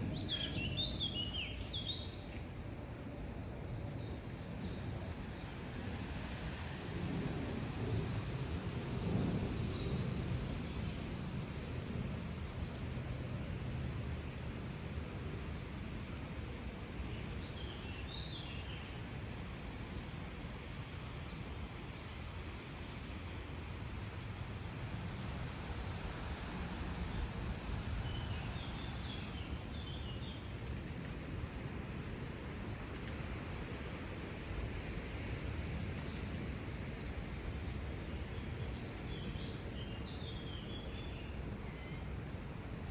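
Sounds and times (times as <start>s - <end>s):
small birds chirping: 26.4s - 34.2s.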